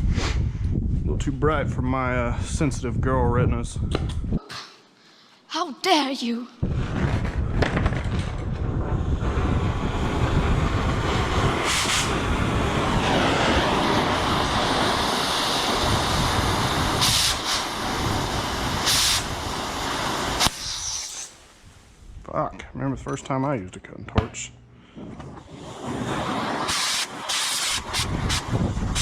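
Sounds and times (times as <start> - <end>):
cutting torch flame hissing: 6.7 - 22.1, 25.4 - 29.0.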